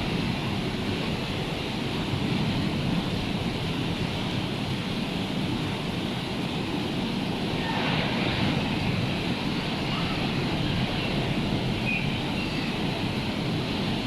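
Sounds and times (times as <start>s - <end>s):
rough sea surf: 0.0s - 14.0s
wind: 0.0s - 14.0s.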